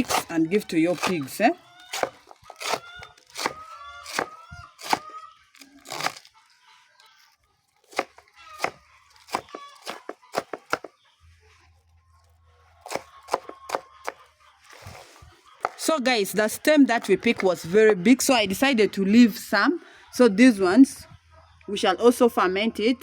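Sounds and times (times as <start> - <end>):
blade chopping banana stem: 0.0 - 5.1, 7.9 - 10.9, 12.8 - 14.2
chickens calling: 0.0 - 23.0.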